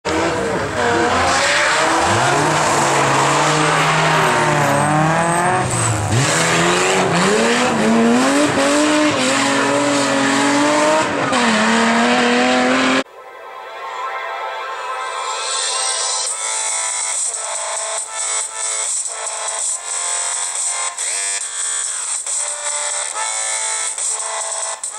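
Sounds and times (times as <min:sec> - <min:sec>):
rally car engine revving: 0:00.1 - 0:13.1.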